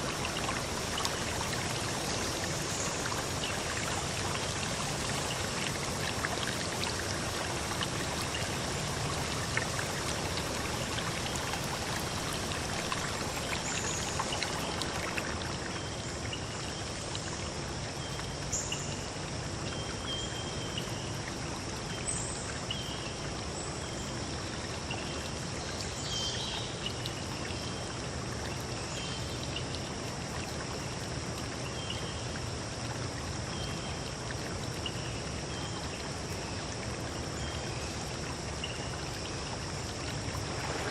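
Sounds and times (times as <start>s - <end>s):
water rushing: 0.0s - 17.2s, 38.0s - 40.9s.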